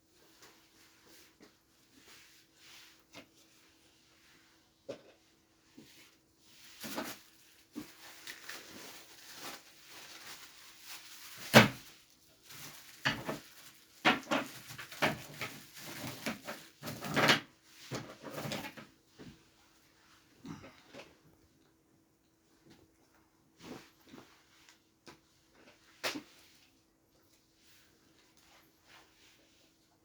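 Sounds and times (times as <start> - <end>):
rustling of objects handled: 0.0 - 30.0
objects knocking and clattering: 12.9 - 18.9.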